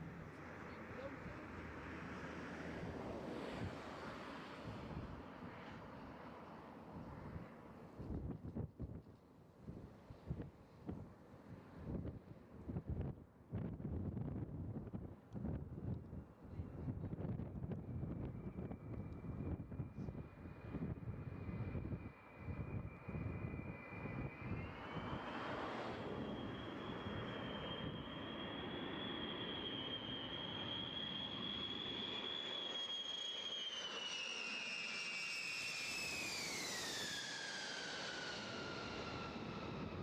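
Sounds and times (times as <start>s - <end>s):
jet engines whining: 17.8s - 40.0s.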